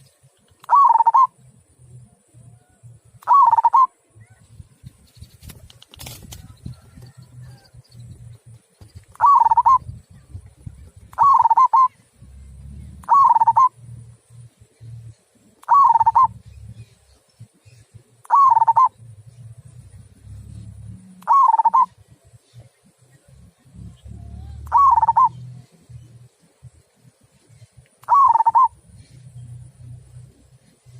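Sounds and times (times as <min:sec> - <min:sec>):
dove cooing: 0:00.6 - 0:01.4, 0:02.6 - 0:04.4, 0:06.2 - 0:08.5, 0:09.1 - 0:14.0, 0:15.6 - 0:16.8, 0:18.2 - 0:22.1, 0:23.7 - 0:26.2, 0:28.0 - 0:30.5.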